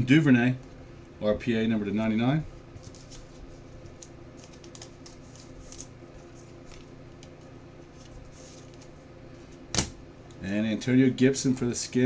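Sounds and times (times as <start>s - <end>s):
steady low hum: 0.0s - 12.0s
cards rustling and scraping: 2.7s - 9.6s.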